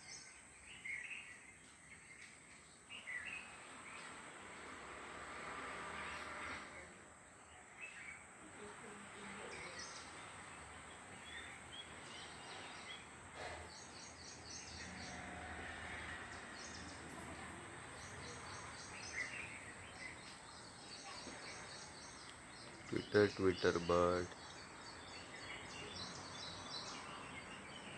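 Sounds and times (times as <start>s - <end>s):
small birds chirping: 0.0s - 4.9s, 5.6s - 27.9s
steady background hiss: 22.4s - 27.9s.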